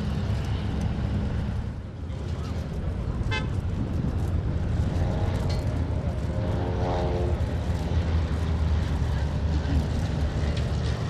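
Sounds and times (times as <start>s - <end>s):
propeller aircraft engine drone: 0.0s - 11.0s
propeller buzzing: 2.6s - 11.0s.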